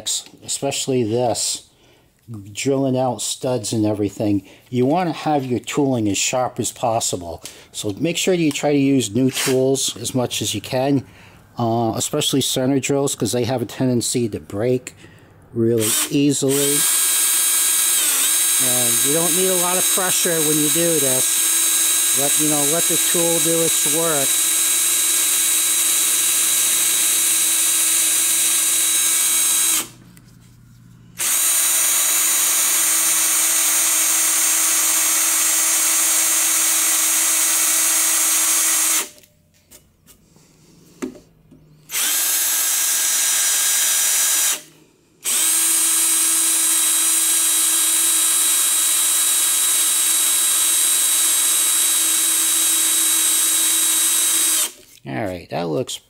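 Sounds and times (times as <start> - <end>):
electric drill whining: 15.8 - 30.0, 31.2 - 39.3, 41.9 - 54.8.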